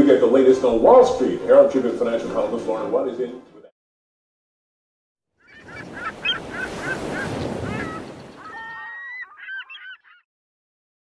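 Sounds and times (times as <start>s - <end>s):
sliding bird calls: 5.4s - 10.2s
birds honking: 5.4s - 10.3s.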